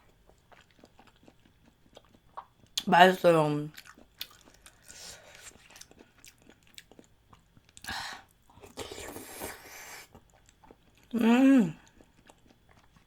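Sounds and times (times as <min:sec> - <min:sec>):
wet chewing clicks: 0:00.3 - 0:02.9, 0:03.7 - 0:07.9, 0:11.8 - 0:13.0.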